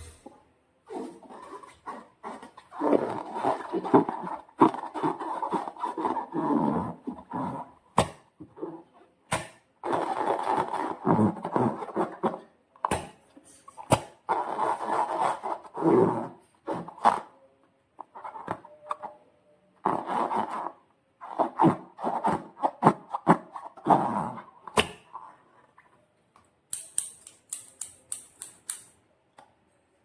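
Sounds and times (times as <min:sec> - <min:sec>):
sticky crackling clicks: 0:26.7 - 0:29.0.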